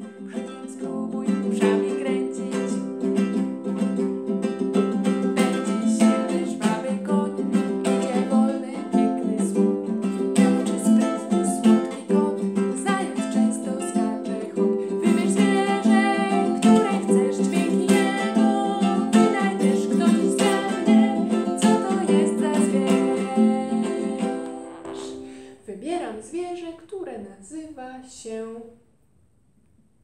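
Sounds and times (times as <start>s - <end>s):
woman singing: 0.0s - 3.4s, 5.3s - 26.5s
acoustic guitar strumming: 1.6s - 25.6s.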